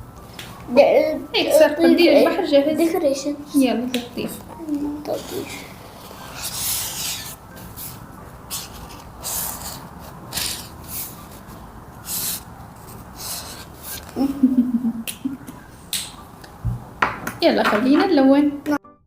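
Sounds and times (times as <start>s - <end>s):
pen scratching on paper: 5.2s - 14.1s.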